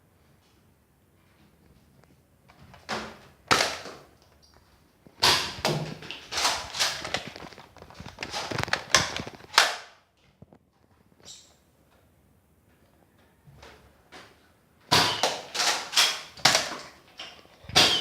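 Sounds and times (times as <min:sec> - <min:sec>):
toy blasters firing: 0:14.9 - 0:16.1.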